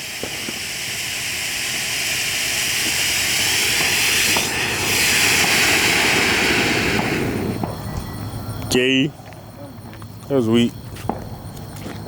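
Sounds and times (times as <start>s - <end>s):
firework fountain hissing: 0.0s - 9.0s.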